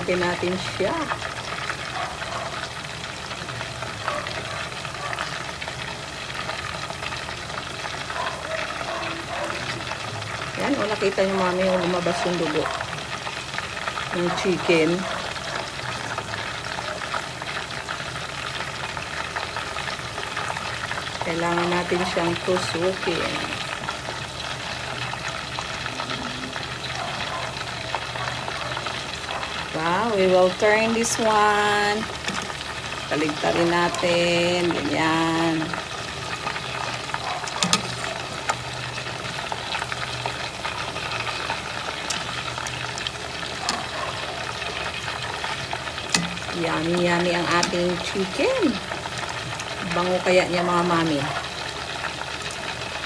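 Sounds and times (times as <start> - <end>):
chicken deep-frying in hot oil: 0.0 - 53.0.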